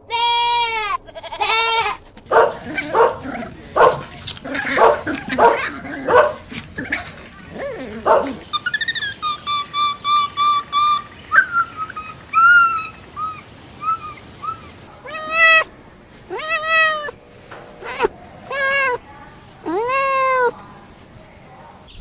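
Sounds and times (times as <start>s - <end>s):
cat meowing: 0.1s - 8.4s, 15.0s - 15.7s, 16.3s - 17.2s, 17.8s - 19.0s, 19.6s - 20.6s.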